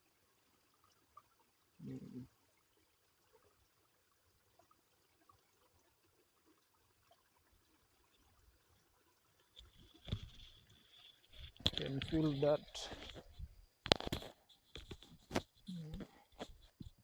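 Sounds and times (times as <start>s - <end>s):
faint stream trickling: 0.0s - 17.0s.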